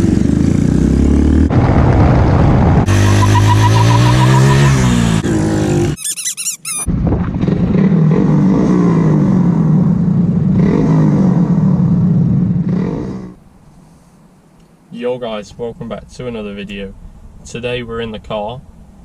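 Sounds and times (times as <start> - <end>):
motorcycle engine running: 0.0 - 1.7
high wavering squeal: 2.9 - 5.0, 6.0 - 6.9.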